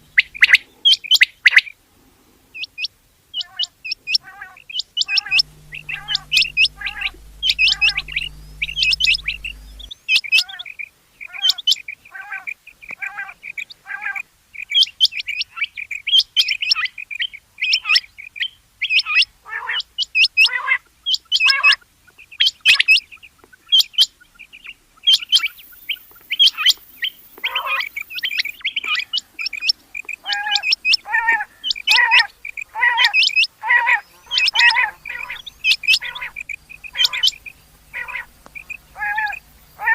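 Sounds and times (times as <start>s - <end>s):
quail calling: 26.2s - 39.9s.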